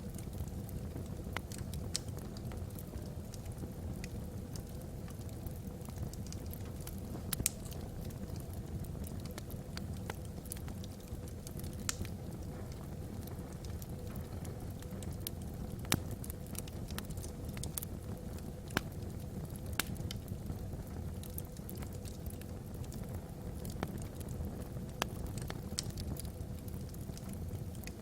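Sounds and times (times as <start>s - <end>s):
logs crackling and popping: 0.0s - 28.0s
low rumble of flames: 0.0s - 28.0s.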